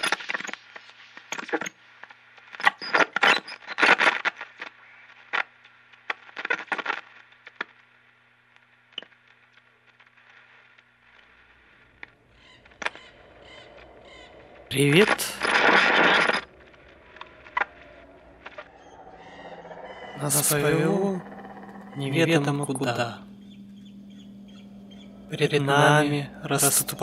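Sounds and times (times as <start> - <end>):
faint electrical hum: 7.1 - 27.0.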